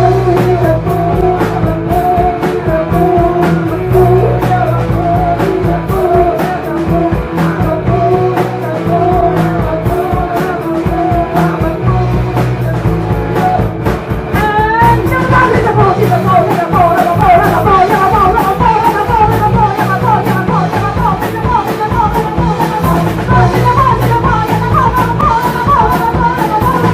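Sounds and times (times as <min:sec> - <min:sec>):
fast wavering lead guitar notes: 0:00.0 - 0:26.9
rock band playing live: 0:00.0 - 0:26.9.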